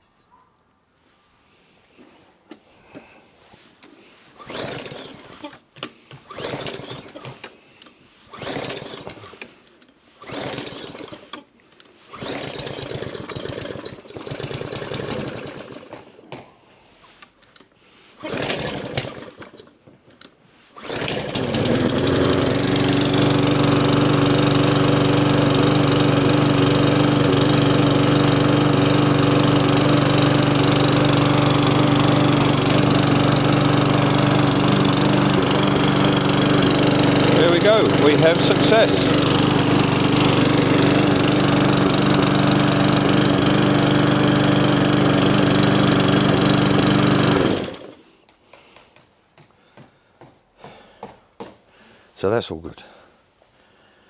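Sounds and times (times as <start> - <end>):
lawnmower engine cranking: 3.8 - 16.2, 17.1 - 48.1
lawnmower engine running: 4.2 - 16.2, 17.9 - 48.1.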